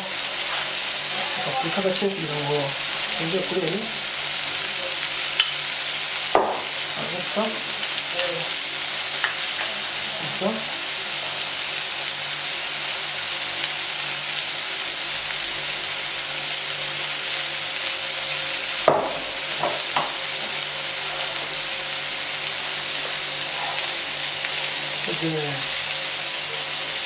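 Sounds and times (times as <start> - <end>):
meatballs sizzling in a pan: 0.0 - 27.0
sharp knock: 6.4 - 6.7.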